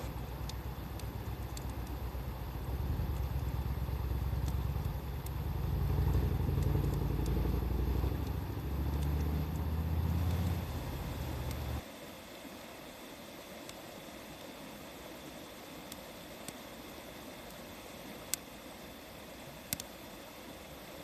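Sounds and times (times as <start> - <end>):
vehicle engine rumble: 0.0 - 11.8
faint wood fire crackles: 0.0 - 21.0.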